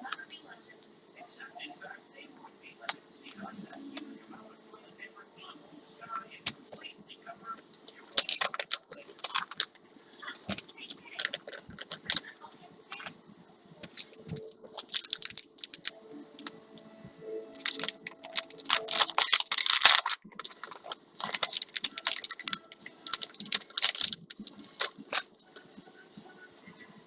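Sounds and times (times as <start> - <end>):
packaging crinkling and rustling: 7.6 - 9.8, 10.4 - 13.1, 13.8 - 16.5, 17.6 - 25.6.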